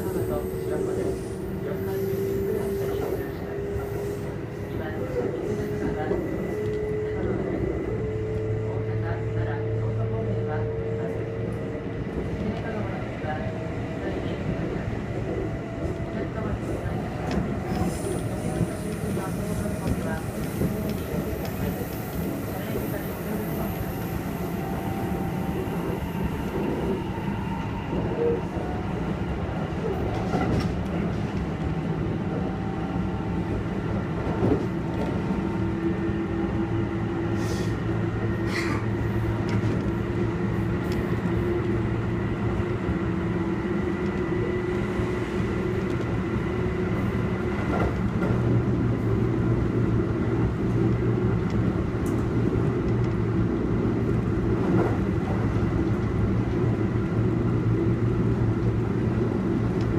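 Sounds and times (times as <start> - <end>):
train hum: 0.0 - 59.9
wheels rumbling on rail: 0.0 - 59.9.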